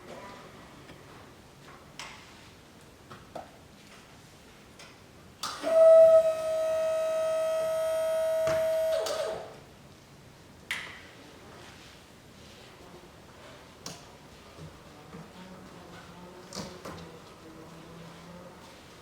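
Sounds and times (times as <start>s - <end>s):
pallet truck high tone: 5.6s - 9.5s.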